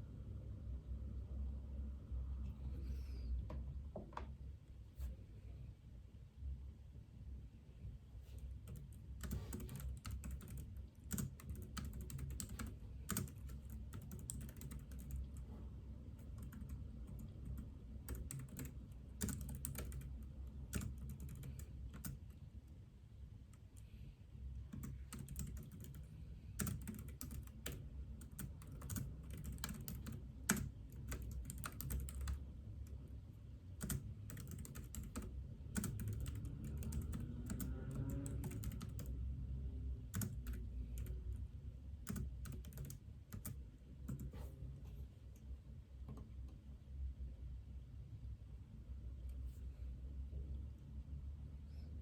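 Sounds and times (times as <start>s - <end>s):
steady low hum: 0.0s - 52.0s
keyboard typing: 8.6s - 15.5s, 16.2s - 22.4s, 24.6s - 32.4s, 33.8s - 39.2s, 40.1s - 41.4s, 42.0s - 44.5s.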